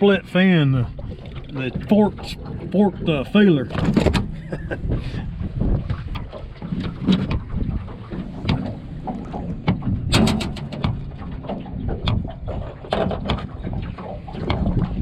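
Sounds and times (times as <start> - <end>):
wind buffeting microphone: 0.0 - 15.0
short clicks and knocks: 9.7 - 11.0.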